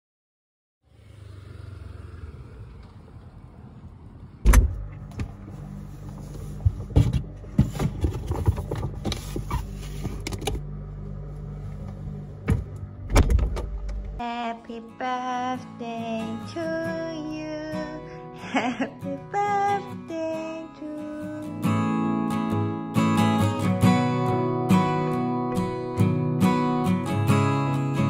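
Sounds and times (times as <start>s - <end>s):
low vehicle rumble: 0.8s - 14.3s.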